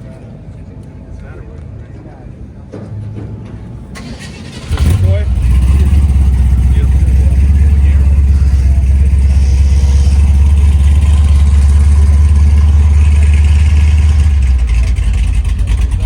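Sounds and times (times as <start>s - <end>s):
car engine idling: 4.0s - 16.0s.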